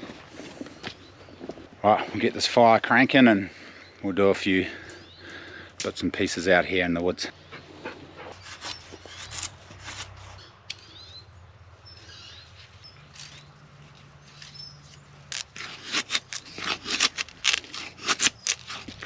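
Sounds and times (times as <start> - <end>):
kindling crackling and snapping: 13.1 - 19.0.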